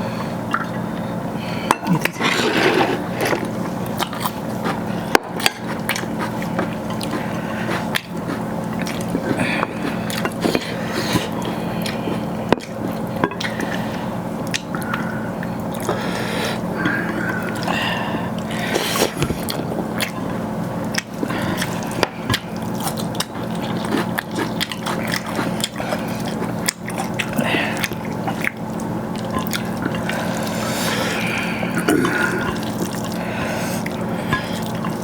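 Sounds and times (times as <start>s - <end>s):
steady low hum: 0.0s - 35.0s
wet chewing and lip smacks: 3.9s - 10.6s.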